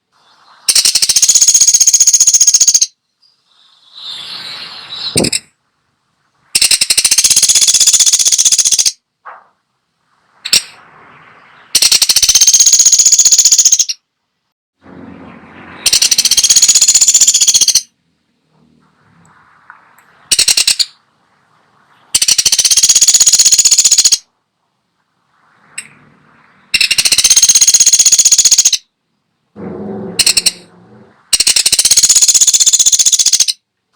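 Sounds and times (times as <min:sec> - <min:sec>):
woodpecker rattling calls: 0:00.6 - 0:04.2, 0:05.0 - 0:05.5, 0:06.5 - 0:09.0, 0:10.4 - 0:10.8, 0:11.4 - 0:14.0, 0:15.8 - 0:17.9, 0:19.3 - 0:21.0, 0:22.0 - 0:24.3, 0:25.7 - 0:28.9, 0:29.9 - 0:33.6.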